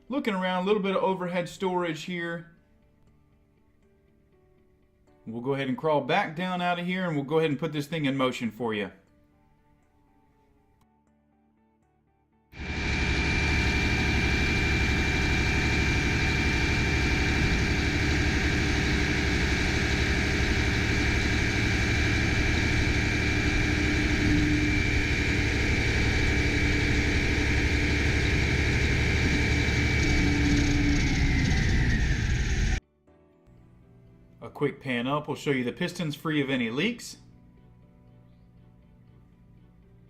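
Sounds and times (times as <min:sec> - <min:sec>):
diesel truck engine running: 0:12.6 - 0:32.8
hydraulic hoist whine: 0:12.6 - 0:32.8.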